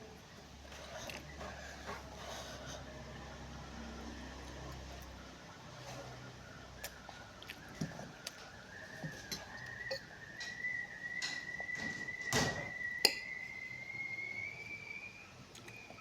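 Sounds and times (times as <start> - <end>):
high whistling tone: 6.4 - 16.0
clicks and smacks of eating: 6.8 - 11.5, 15.5 - 15.9.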